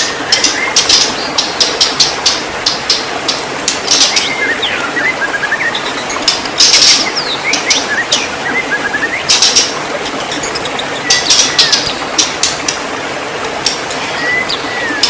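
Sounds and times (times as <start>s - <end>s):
harsh bird chattering: 0.0s - 12.8s
bird singing whistled notes: 3.8s - 6.2s, 6.8s - 12.3s, 14.1s - 15.0s.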